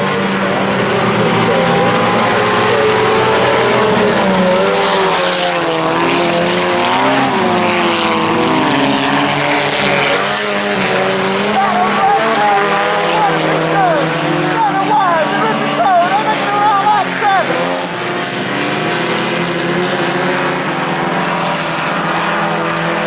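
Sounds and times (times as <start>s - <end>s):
race car engines accelerating: 0.0s - 23.0s.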